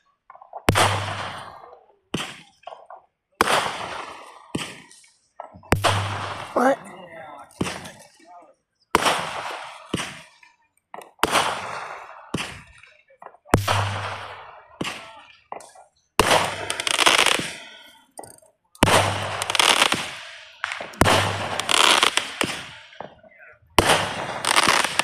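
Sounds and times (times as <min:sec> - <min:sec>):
firework bangs: 0:00.3 - 0:08.2, 0:08.9 - 0:18.1, 0:18.8 - 0:25.0
firework crackle: 0:09.0 - 0:18.1, 0:18.8 - 0:25.0.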